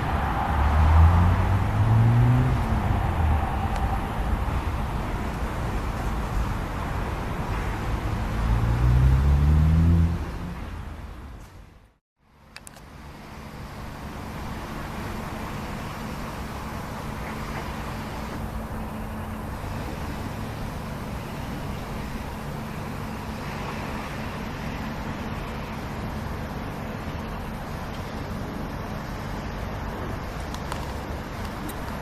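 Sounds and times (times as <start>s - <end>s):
train rolling rumble: 0.0s - 9.0s, 13.0s - 32.0s
locomotive low hum: 0.0s - 11.9s.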